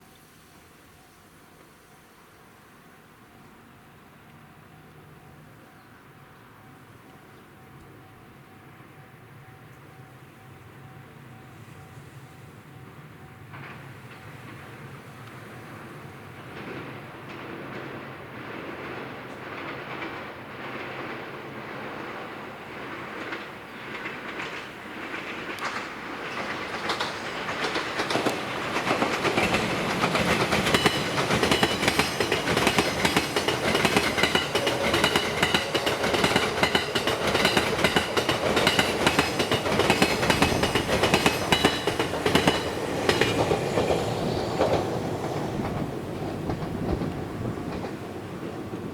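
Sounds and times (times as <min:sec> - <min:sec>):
train wheels clicking over rail joints: 0:13.4 - 0:48.9.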